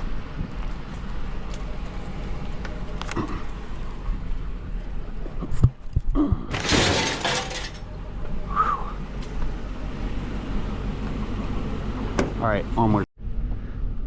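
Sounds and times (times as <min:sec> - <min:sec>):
crash of something breaking: 0:06.5 - 0:07.8.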